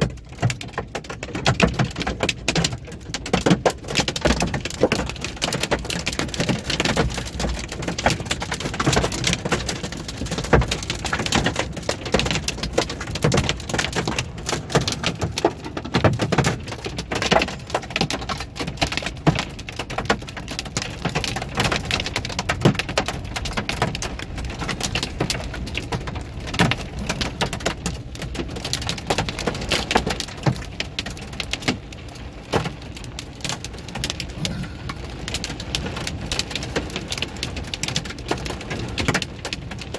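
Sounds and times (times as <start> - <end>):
hailstones clattering: 0.0 - 39.9
heavy rain hissing: 32.1 - 39.1.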